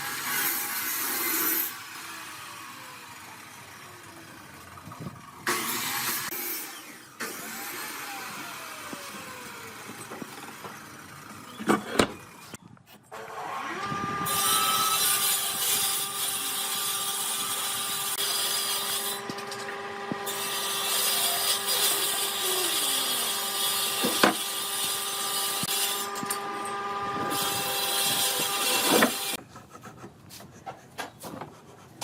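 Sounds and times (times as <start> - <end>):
power tool motor whine: 5.4 - 29.4
saw cutting wood hiss: 20.1 - 26.5, 27.1 - 29.4.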